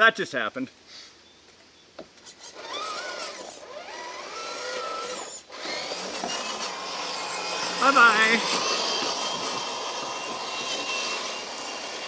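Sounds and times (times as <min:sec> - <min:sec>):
electric motor whining: 0:02.2 - 0:12.0.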